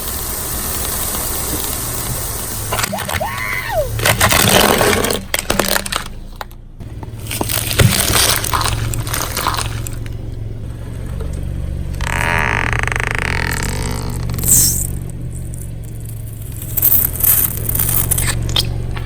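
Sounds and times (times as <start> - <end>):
car engine hum: 0.0 - 19.0
tyre squeal: 2.7 - 4.9, 11.8 - 19.0
tyre crunching objects: 2.7 - 19.0.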